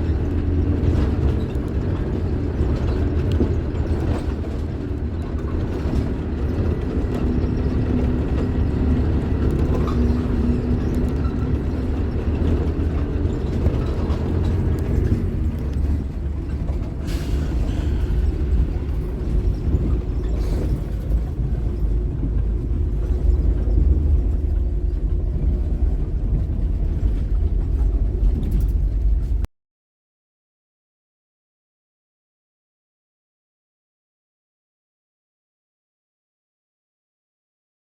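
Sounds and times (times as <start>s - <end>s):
bus diesel engine rumbling: 0.0s - 29.5s.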